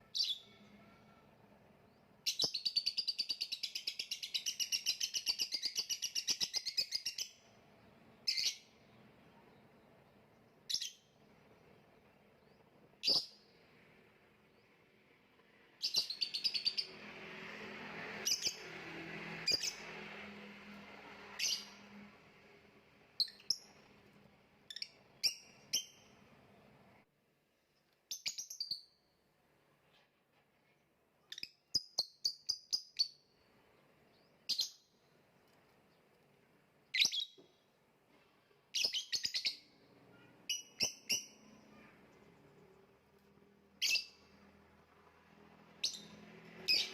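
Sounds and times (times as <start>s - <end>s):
bird chirps: 0.0s - 11.2s, 12.0s - 13.6s, 15.7s - 17.0s, 21.3s - 22.0s, 23.2s - 23.9s, 24.7s - 26.2s, 28.1s - 29.2s, 31.2s - 35.1s, 36.8s - 37.6s, 38.7s - 42.9s, 43.7s - 44.4s, 45.8s - 46.9s.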